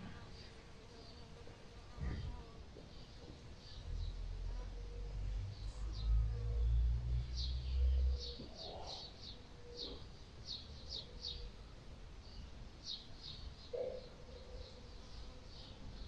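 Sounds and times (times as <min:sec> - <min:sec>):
small bird chirping: 0:03.0 - 0:11.6.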